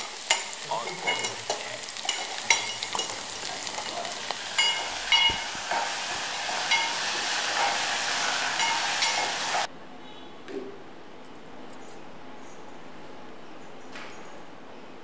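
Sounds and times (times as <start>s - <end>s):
food sizzling in hot oil: 0.0s - 9.7s
metal spoon clinking against pot: 0.2s - 5.9s, 6.7s - 7.7s, 8.6s - 9.4s.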